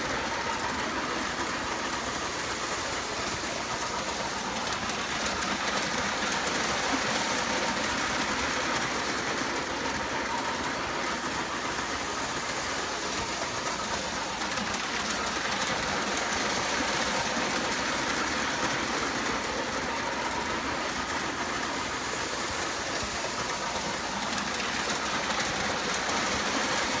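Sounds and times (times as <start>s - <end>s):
model train motor whirring: 0.0s - 27.0s.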